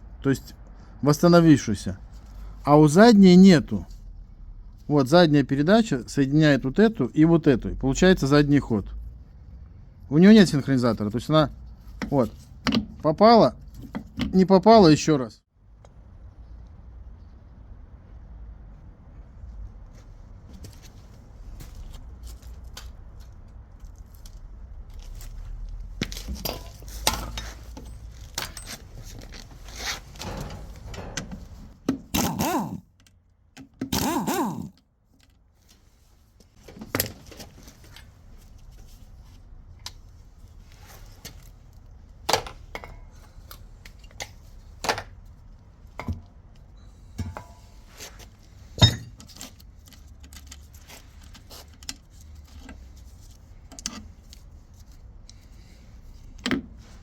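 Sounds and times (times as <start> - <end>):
metal parts rattling: 26.2 - 32.8.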